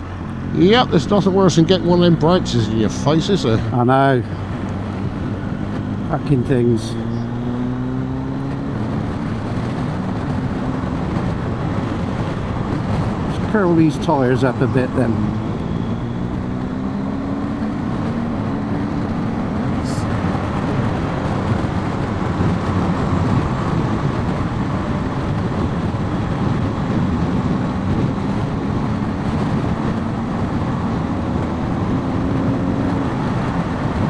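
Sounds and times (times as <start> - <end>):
motorcycle engine running: 0.0 - 34.0
wind and road rush: 0.0 - 34.0.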